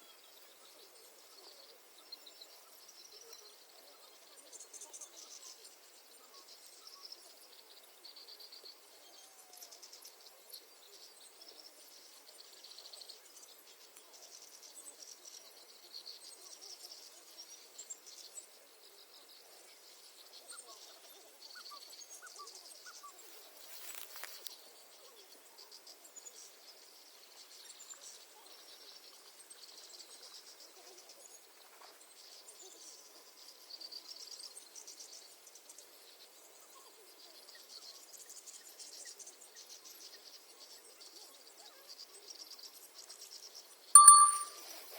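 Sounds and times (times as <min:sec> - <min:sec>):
faint bird chirps: 0:42.3 - 0:44.8.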